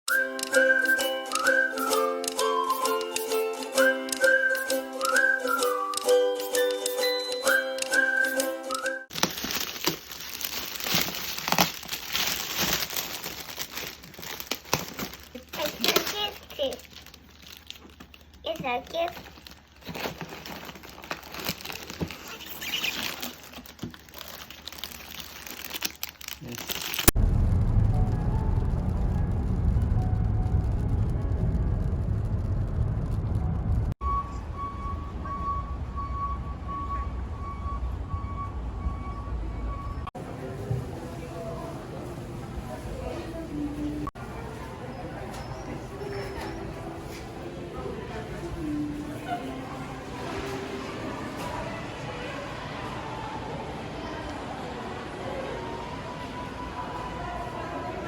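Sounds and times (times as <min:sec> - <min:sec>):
gift wrapping crinkling: 0:09.1 - 0:27.2
car road rumble: 0:27.2 - 0:39.0.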